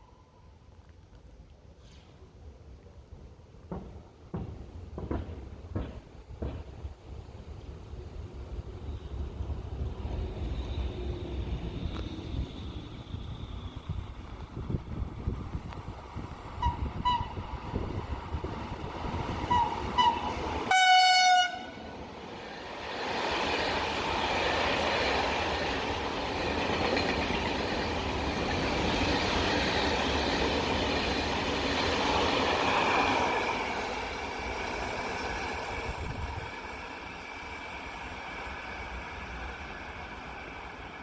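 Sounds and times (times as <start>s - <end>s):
train passing with rumble: 1.7s - 41.0s
train horn blasts: 16.6s - 17.4s, 19.4s - 21.9s.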